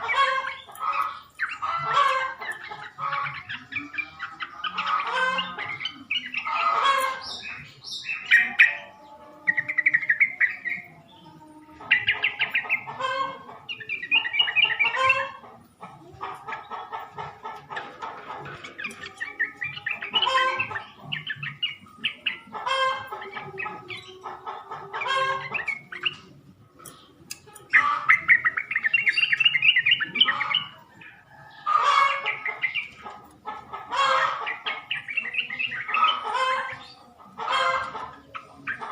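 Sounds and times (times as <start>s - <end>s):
bulbul song: 0.0s - 38.9s.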